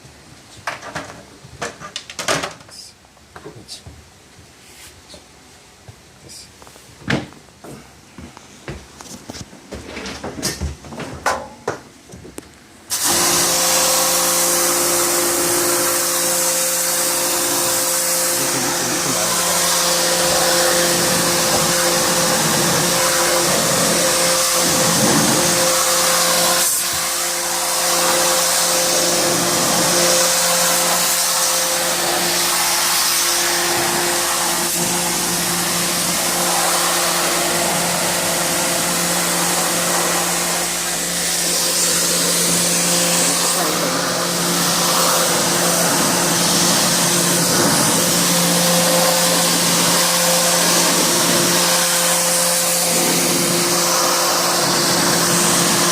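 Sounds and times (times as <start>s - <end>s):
cleaning machine motor hum: 12.9s - 55.9s
hiss of air or spray: 12.9s - 55.9s.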